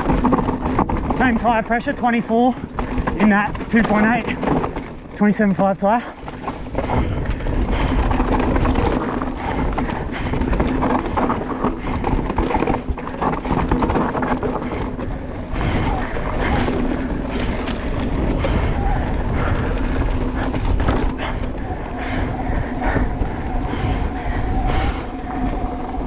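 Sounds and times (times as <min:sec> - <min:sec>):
bike chain and suspension rattling: 0:00.0 - 0:26.0
tyres rolling on dirt and rock: 0:00.0 - 0:26.0
wind buffeting microphone: 0:06.1 - 0:26.0.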